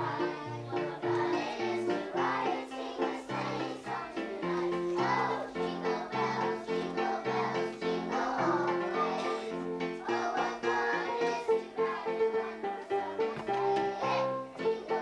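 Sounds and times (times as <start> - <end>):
children singing: 0.0 - 15.0.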